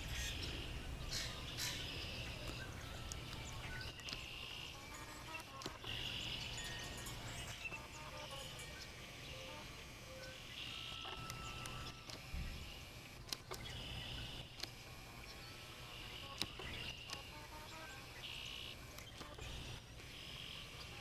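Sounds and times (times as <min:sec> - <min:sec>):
insects trilling: 0:00.0 - 0:21.0
sharp clicks: 0:01.2 - 0:06.6, 0:10.2 - 0:15.4, 0:16.0 - 0:21.0.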